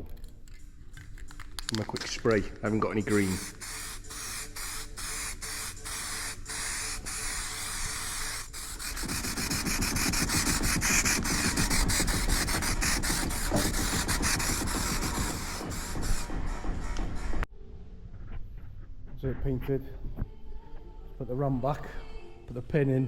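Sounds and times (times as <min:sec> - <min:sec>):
spray paint can hissing: 0:01.6 - 0:17.4.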